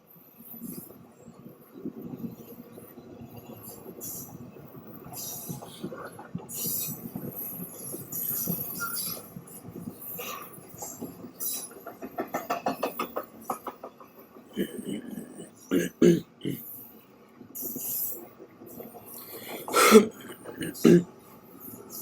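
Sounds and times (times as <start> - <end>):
freight train clanking over track: 5.2 - 16.1.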